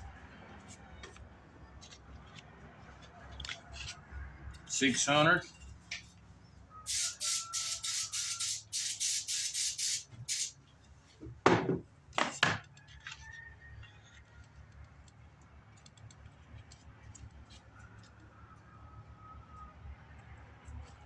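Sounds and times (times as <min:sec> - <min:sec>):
sandpaper hissing strokes: 0:06.9 - 0:10.6.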